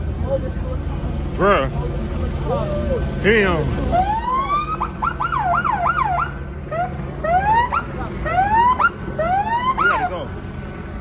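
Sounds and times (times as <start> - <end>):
police siren: 3.8 - 10.3.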